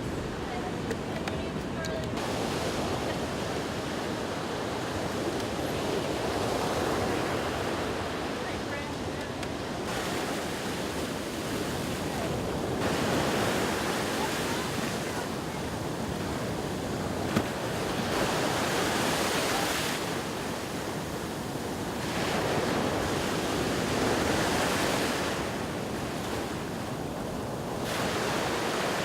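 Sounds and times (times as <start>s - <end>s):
ocean surf breaking on beach: 0.0s - 29.0s
wind on microphone: 0.0s - 29.0s.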